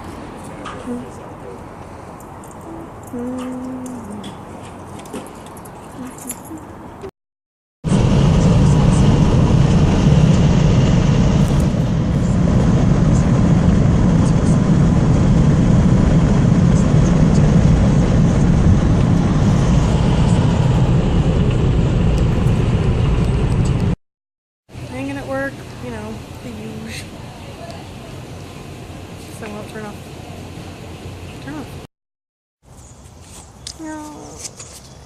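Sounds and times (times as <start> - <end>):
car road and engine rumble: 7.9 - 24.0.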